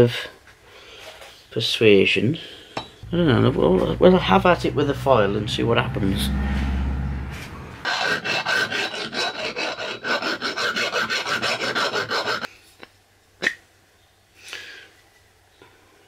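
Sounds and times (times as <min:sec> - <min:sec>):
metal rasping strokes: 0:03.0 - 0:12.5.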